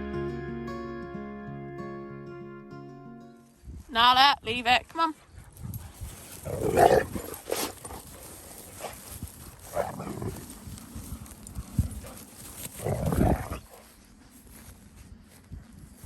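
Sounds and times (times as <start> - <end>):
dogs vocalising in play: 5.4 - 10.8, 11.5 - 13.9.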